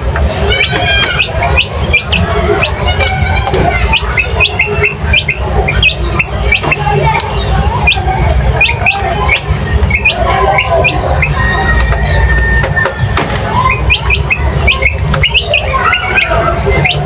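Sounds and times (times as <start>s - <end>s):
birds chirping and squawking: 0.0s - 17.0s.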